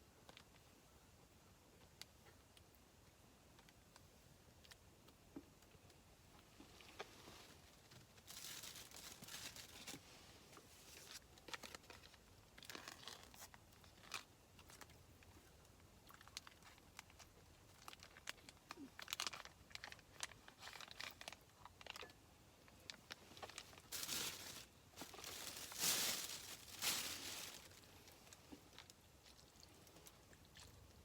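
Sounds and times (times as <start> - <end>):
rustling and crinkling: 3.5 - 15.5, 16.1 - 30.9.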